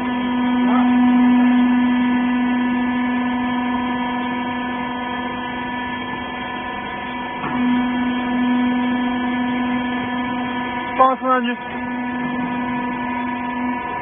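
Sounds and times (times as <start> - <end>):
baler power unit humming: 0.0 - 14.0.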